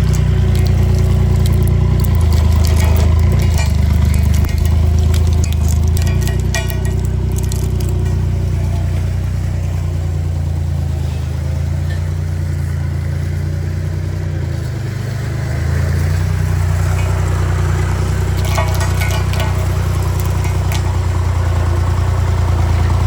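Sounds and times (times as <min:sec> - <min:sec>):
sharp cracks: 0:00.0 - 0:09.0, 0:16.5 - 0:21.5
road roller engine running: 0:00.0 - 0:23.0.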